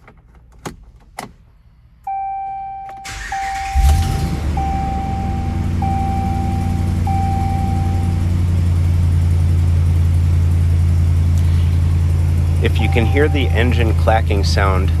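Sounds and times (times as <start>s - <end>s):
dashboard warning chime: 2.1s - 8.9s, 12.2s - 15.0s
pickup engine idling: 3.0s - 15.0s
exhaust clacking: 3.1s - 15.0s.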